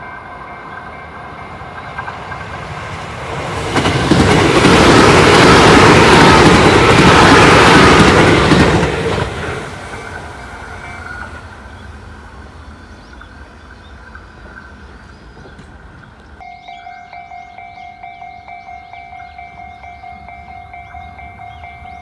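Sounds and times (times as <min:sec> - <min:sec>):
electric train running past: 0:00.0 - 0:22.0
repeating electronic ringing tone: 0:16.4 - 0:22.0.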